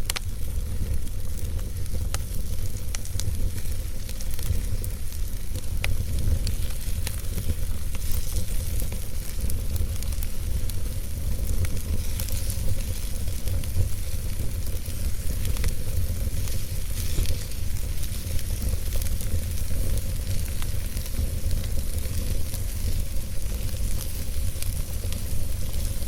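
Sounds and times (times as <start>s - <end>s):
fire crackling and popping: 0.0s - 26.0s
low rumble and hiss of fire: 0.0s - 26.0s.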